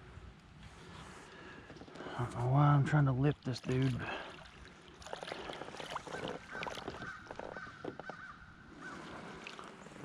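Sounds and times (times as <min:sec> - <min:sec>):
clicks and knocks in kayak: 0:05.1 - 0:08.4
crow-like bird calling: 0:06.1 - 0:09.1.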